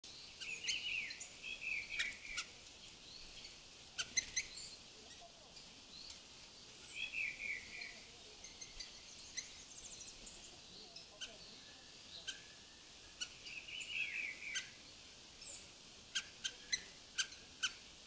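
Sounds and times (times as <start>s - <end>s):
steady high hiss: 0.0s - 18.0s
birds chirping and calling: 0.1s - 6.2s, 6.8s - 18.0s
falling warbled bird phrases: 6.9s - 15.0s.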